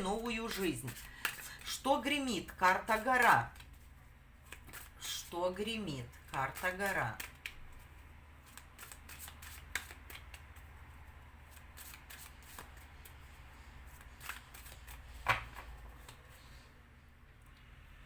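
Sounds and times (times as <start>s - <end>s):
cards clicking and tapping: 0.5s - 1.7s, 4.4s - 4.9s, 6.3s - 7.8s, 8.4s - 10.7s, 11.5s - 13.2s, 13.9s - 16.2s.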